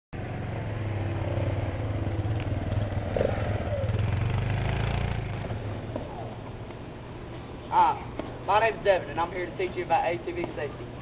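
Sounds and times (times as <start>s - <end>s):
atv engine running: 0.2s - 6.6s.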